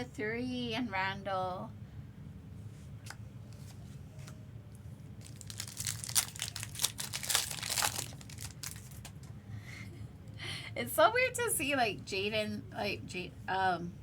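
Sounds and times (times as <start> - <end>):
foil wrapper crinkling: 5.2 - 9.2.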